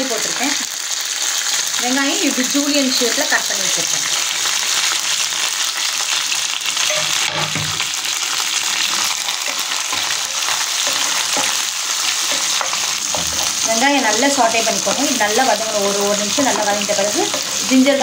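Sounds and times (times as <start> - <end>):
onions sizzling in hot oil: 0.0 - 18.0
spatula stirring in pan: 8.8 - 18.0.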